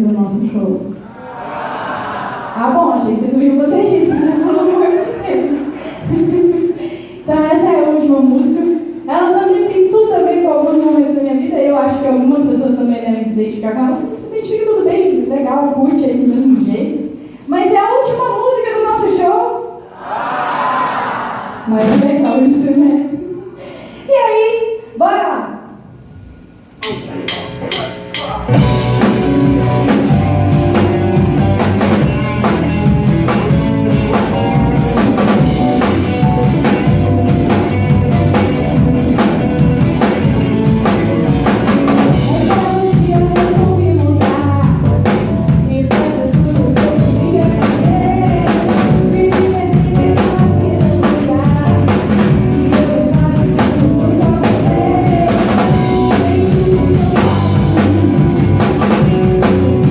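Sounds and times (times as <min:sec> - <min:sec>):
live rock band playing: 0:26.8 - 0:59.9.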